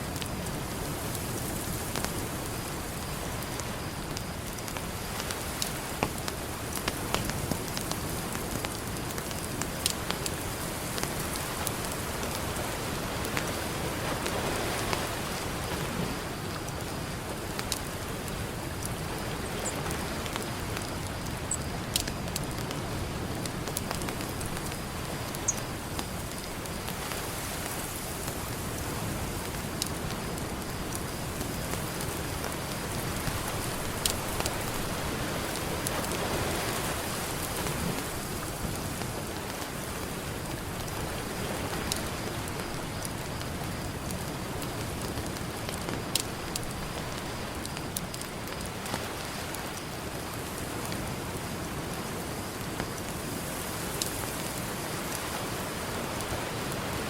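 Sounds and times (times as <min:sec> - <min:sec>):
campfire crackling: 0:00.0 - 0:57.0
ocean surf: 0:00.0 - 0:57.0
campfire popping: 0:00.1 - 0:53.4.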